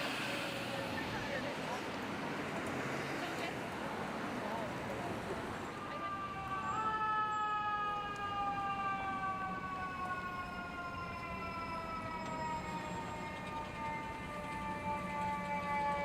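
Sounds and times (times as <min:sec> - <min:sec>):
fire engine siren winding down: 0:04.5 - 0:16.0.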